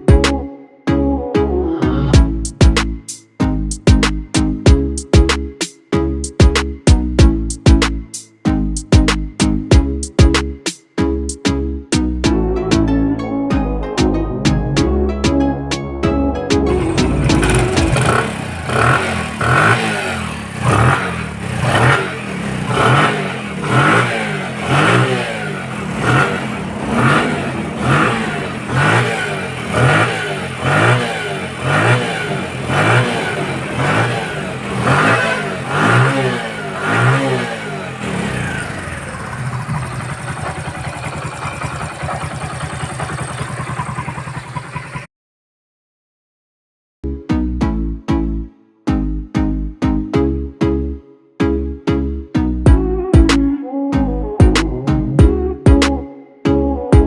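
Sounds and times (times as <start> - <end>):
motorcycle engine idling: 16.8 - 45.1
motorcycle engine throttle blips: 16.8 - 45.1.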